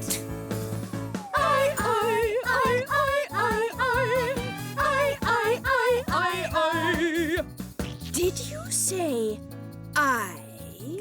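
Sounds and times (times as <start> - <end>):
upbeat children's pop backing track: 0.0 - 11.0
cartoon voices singing: 1.3 - 7.4.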